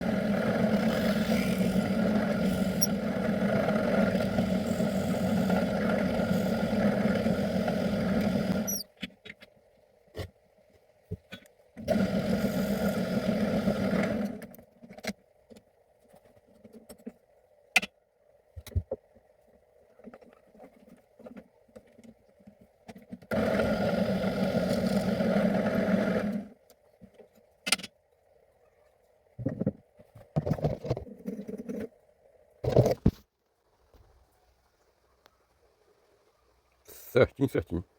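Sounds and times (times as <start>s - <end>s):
small motor running: 0.0s - 8.8s, 11.9s - 14.5s, 23.3s - 26.5s.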